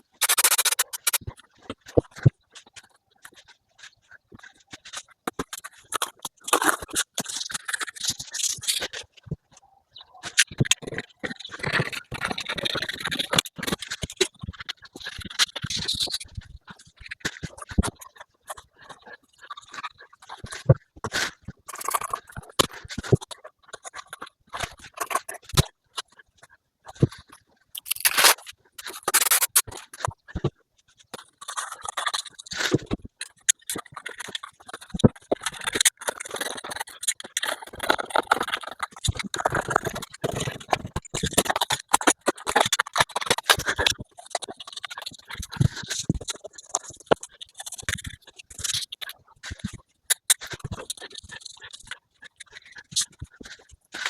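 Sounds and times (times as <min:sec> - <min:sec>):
scraping and rubbing noises: 0:00.0 - 0:54.0
sharp ticks: 0:00.2 - 0:01.4.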